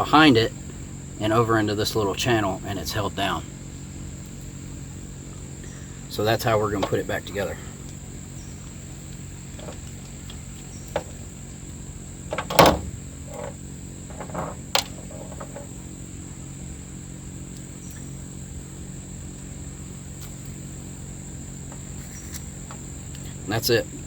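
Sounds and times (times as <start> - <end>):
steady low hum: 0.0 - 24.0
light clicks and knocks: 6.8 - 7.1, 9.6 - 11.2, 12.3 - 15.8.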